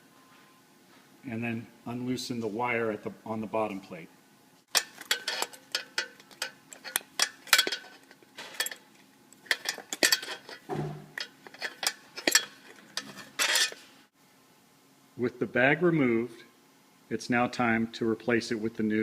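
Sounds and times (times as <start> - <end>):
pliers clicking on metal plate: 4.7 - 13.8.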